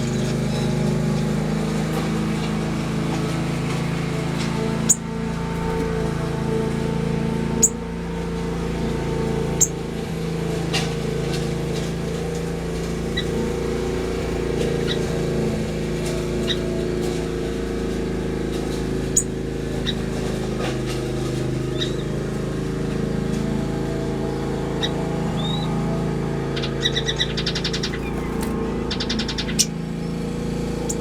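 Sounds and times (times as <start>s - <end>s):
steady low drone: 0.0s - 18.7s
finches chirping: 4.6s - 6.5s, 7.6s - 7.8s, 9.5s - 9.8s, 12.8s - 15.7s, 26.5s - 31.0s.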